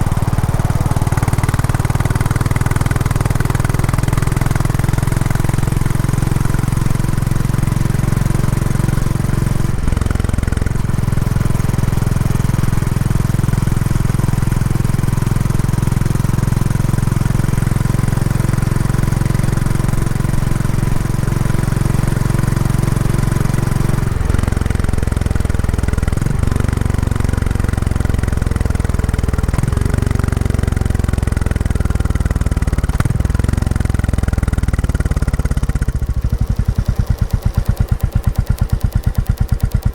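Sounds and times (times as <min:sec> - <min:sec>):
motorcycle engine exhaust note: 0:00.0 - 0:39.9.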